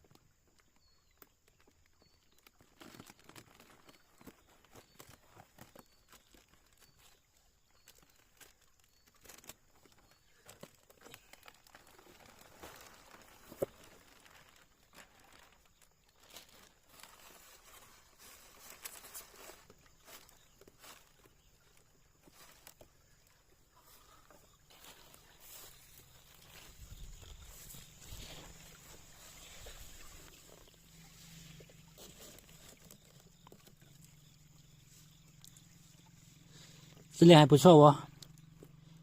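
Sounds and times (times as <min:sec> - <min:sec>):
plastic bag crinkling: 0:02.6 - 0:06.6, 0:08.0 - 0:21.2.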